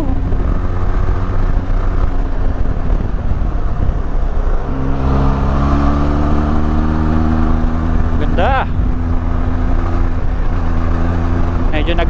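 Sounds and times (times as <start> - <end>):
wind on microphone: 0.0 - 11.7
motorcycle engine running: 0.0 - 12.0
road rumble: 0.0 - 12.0.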